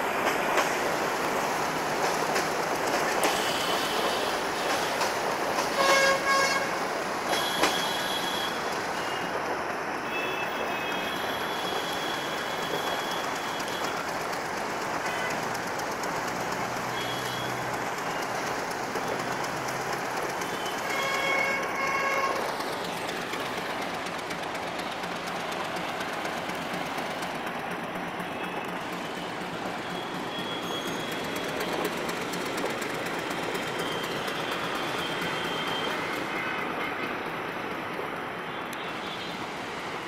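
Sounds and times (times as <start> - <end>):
train wheel and rail noise: 0.0 - 40.0
train horn toots: 5.6 - 8.6, 20.6 - 22.5.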